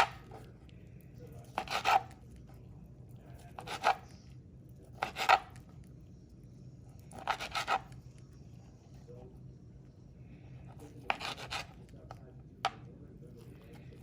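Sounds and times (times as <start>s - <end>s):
knife cutting meat on board: 0.0s - 0.4s, 1.4s - 2.2s, 3.6s - 4.1s, 5.0s - 5.6s, 7.1s - 8.0s, 11.0s - 12.2s.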